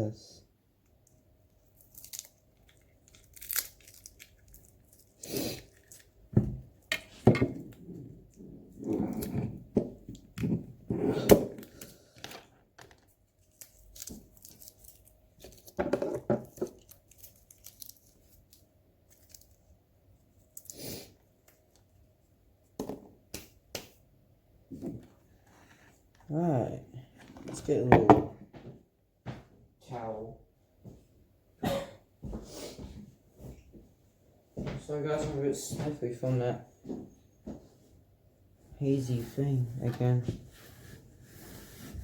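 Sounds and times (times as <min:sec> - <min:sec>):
packaging ripped and crinkled: 0:01.8 - 0:06.1, 0:13.5 - 0:15.7, 0:16.7 - 0:19.6.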